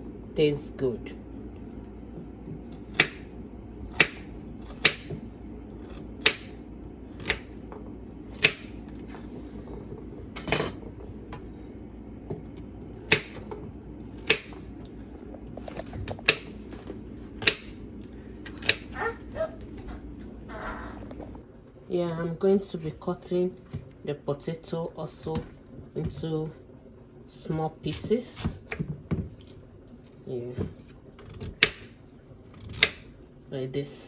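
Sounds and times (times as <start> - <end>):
steady low hum: 0.0 - 34.0
knife chopping on cutting board: 2.5 - 3.3, 3.9 - 5.2, 5.8 - 6.5, 7.2 - 7.5, 8.3 - 8.8, 13.0 - 13.6, 14.2 - 14.6, 15.6 - 17.8, 31.2 - 31.9.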